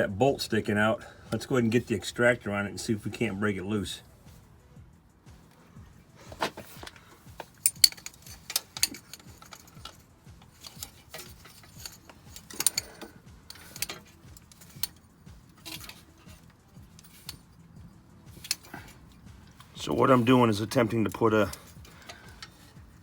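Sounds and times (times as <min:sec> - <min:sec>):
hand tools clinking on metal: 0:06.2 - 0:23.0.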